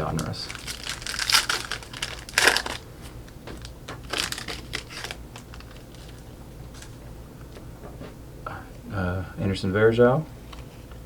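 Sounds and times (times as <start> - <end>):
foil wrapper tearing and crinkling: 0.0 - 7.0
faint handling: 0.0 - 8.2.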